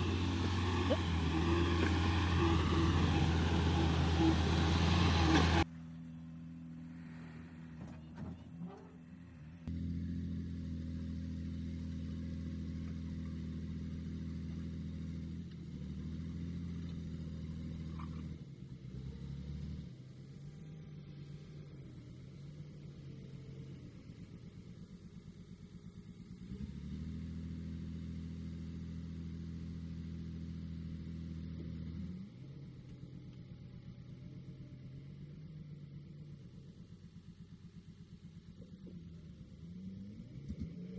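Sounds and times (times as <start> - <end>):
heavy diesel engine running: 0.0 - 5.7
diesel engine running: 0.0 - 40.4.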